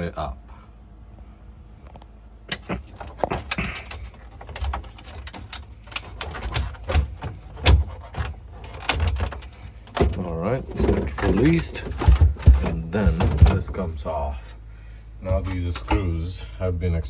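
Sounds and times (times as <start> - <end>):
refrigerator tray clicking and knocking: 2.5 - 14.0, 15.2 - 16.3.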